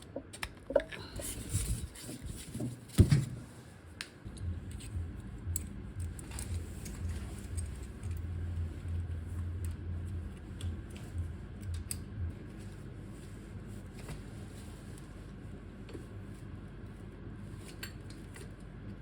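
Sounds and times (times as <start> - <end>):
low hum: 4.2 - 13.8.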